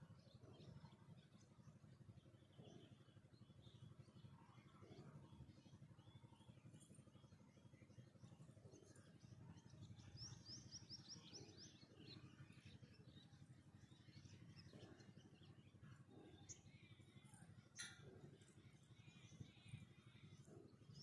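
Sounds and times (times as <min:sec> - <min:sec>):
low background rumble: 0:00.0 - 0:21.0
small bird chirping: 0:04.8 - 0:21.0.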